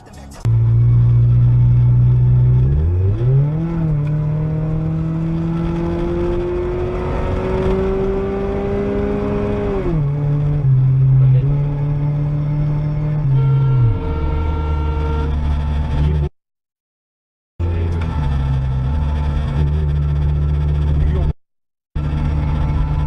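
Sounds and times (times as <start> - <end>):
car engine revving: 0.4 - 16.3, 17.6 - 21.4, 22.0 - 23.0.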